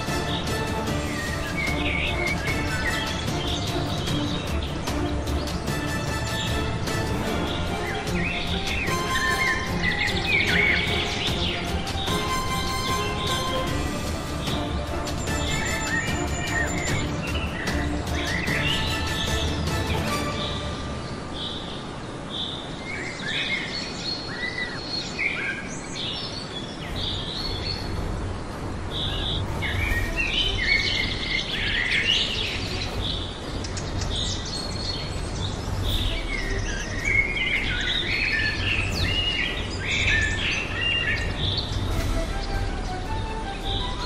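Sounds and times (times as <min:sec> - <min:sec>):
birds chirping and calling: 0:00.0 - 0:44.0.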